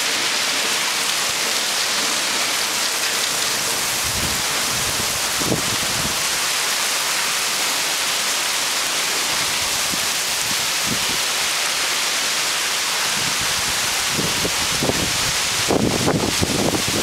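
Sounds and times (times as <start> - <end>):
heavy rain hiss: 0.0 - 17.0
wind gusts on microphone: 3.6 - 6.4, 9.3 - 11.3, 13.0 - 17.0.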